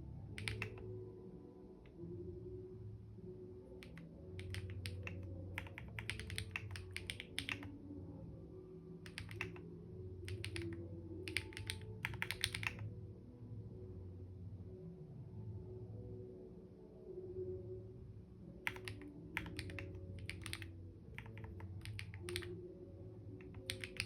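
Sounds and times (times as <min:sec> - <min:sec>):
keyboard typing: 0:00.3 - 0:00.9, 0:03.8 - 0:07.8, 0:09.0 - 0:09.7, 0:10.3 - 0:12.9, 0:18.6 - 0:22.6, 0:23.4 - 0:24.0.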